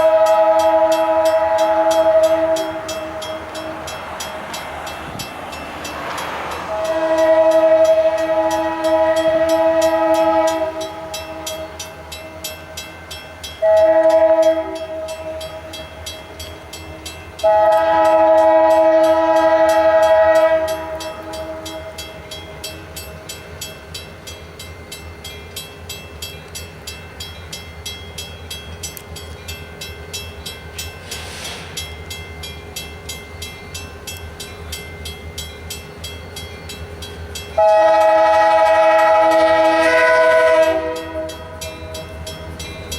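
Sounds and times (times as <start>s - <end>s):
locomotive air horn blasts: 0.0s - 4.0s, 6.6s - 11.8s, 13.6s - 15.7s, 17.4s - 22.0s, 37.6s - 42.2s
moving train rumble: 0.0s - 42.9s.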